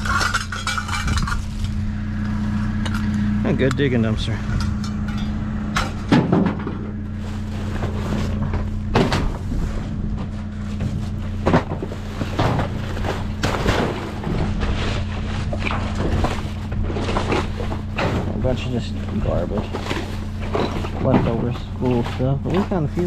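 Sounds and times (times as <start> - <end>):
steady low hum: 0.0 - 23.0
rustling trash bags: 6.1 - 23.0.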